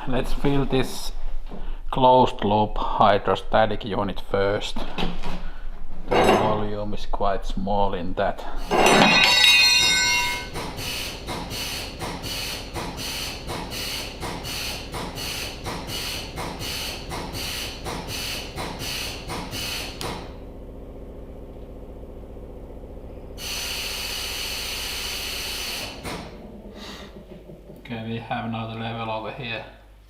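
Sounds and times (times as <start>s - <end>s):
steady low hum: 24.2s - 30.0s.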